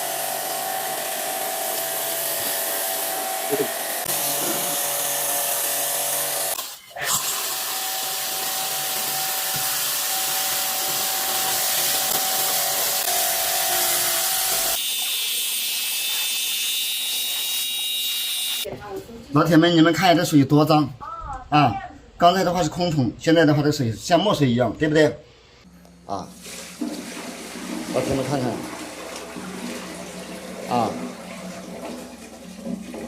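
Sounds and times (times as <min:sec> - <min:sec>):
pressure washer motor whining: 0:00.0 - 0:15.2
water jet hissing: 0:26.3 - 0:33.0.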